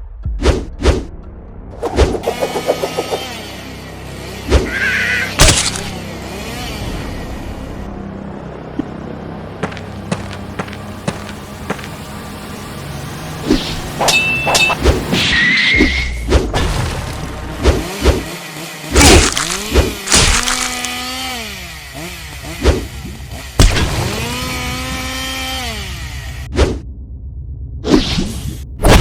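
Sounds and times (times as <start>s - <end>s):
sharp hits: 1.8s - 3.4s
whooshes: 1.8s - 3.5s
rising pitched tone: 1.8s - 3.7s.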